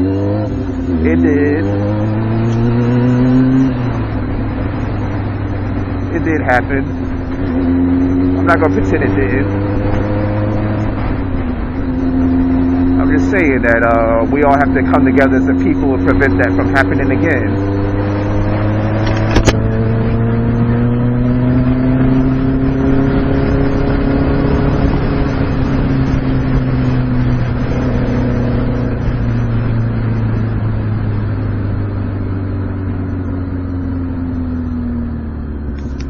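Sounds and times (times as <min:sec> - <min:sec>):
motorcycle engine running: 0:00.0 - 0:36.0
sharp click: 0:19.0 - 0:19.7.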